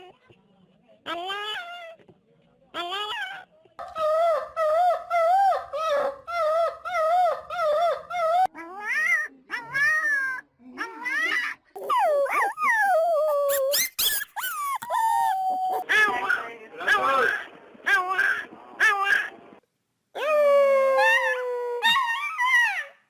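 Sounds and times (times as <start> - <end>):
dog yelping: 2.8 - 19.3, 21.0 - 23.0
dog whining and howling: 3.0 - 16.2, 20.2 - 23.0.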